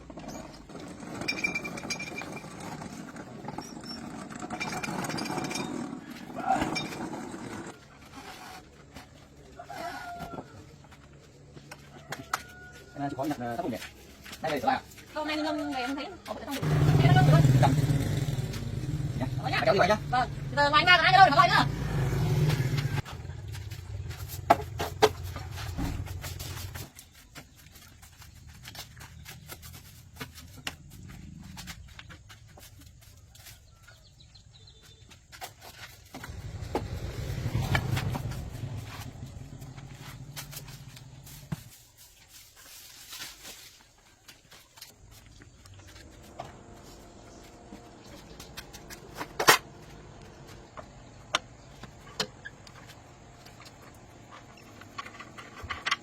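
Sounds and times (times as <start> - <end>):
low engine hum: 36.2 - 41.7.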